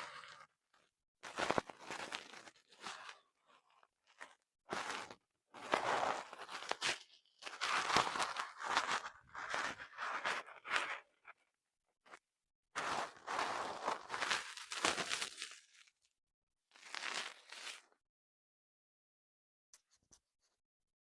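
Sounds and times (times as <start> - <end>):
crunching crinkling handling noises: 1.2 - 11.2, 12.8 - 15.9, 16.8 - 18.0.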